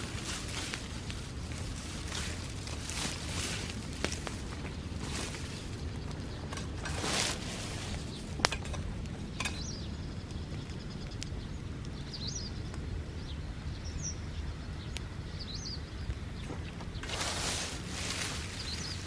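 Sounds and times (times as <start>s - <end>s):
fire burning with low rumble: 0.0s - 19.0s
fire crackling and popping: 0.0s - 19.0s
bird chirping: 4.6s - 17.3s.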